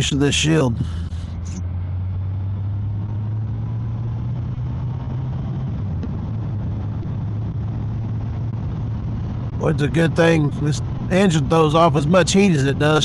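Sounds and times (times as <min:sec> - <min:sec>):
motorcycle engine cruising: 0:00.0 - 0:13.0
wind noise: 0:02.9 - 0:11.5.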